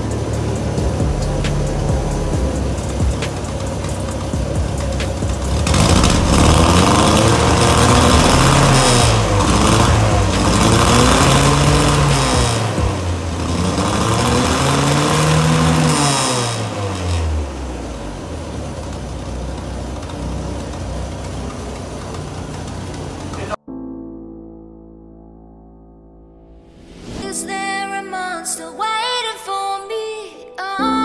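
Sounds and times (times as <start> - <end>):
car engine revving: 0.0 - 23.6.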